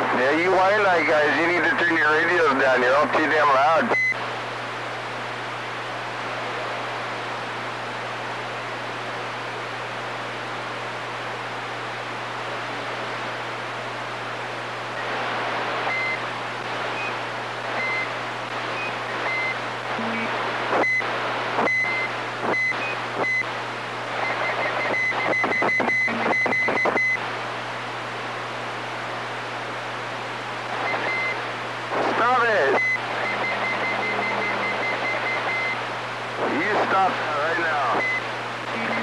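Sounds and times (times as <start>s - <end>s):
radio static hiss: 0.0s - 39.0s
low hum: 32.8s - 36.5s.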